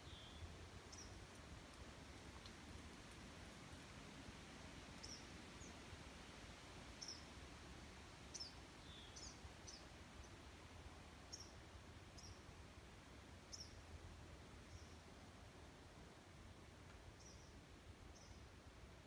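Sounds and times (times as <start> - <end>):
songbird chirping: 0.0 - 1.4, 5.0 - 5.8, 7.0 - 7.4, 8.2 - 10.5, 11.2 - 12.5, 13.4 - 13.9, 14.6 - 15.1, 17.1 - 18.5.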